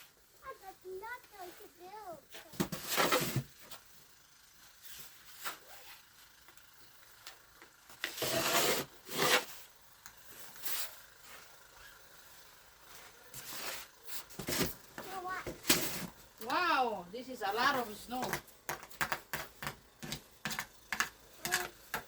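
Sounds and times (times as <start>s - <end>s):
snow being scraped and crunched: 8.1s - 9.7s, 12.9s - 14.8s.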